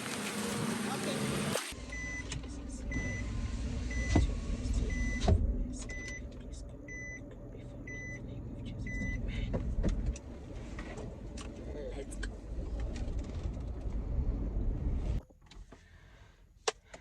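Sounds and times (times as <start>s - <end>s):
low hum of car: 0.0s - 15.6s
car warning chime beeping: 1.9s - 3.3s, 3.9s - 4.2s, 4.9s - 5.3s, 5.9s - 6.3s, 6.9s - 9.3s.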